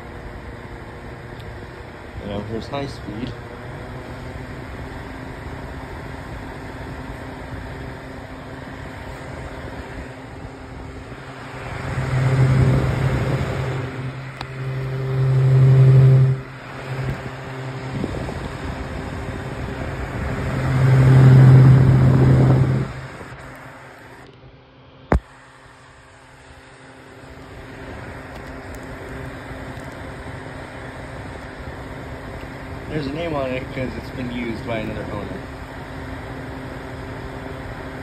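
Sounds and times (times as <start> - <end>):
desk fan whooshing hum: 0.0 - 38.0
loud low rumble: 8.8 - 23.5.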